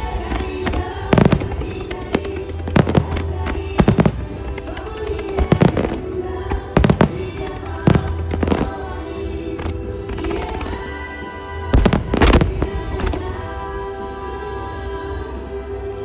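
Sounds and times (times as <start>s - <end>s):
song through loudspeakers: 0.0s - 16.0s
firework shells bursting: 0.4s - 10.6s, 11.8s - 12.8s.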